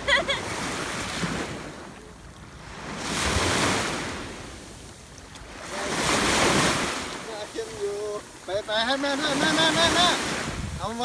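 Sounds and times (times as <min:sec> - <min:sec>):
small waves washing on beach: 0:00.0 - 0:11.0
wind rumbling on microphone: 0:09.8 - 0:11.0.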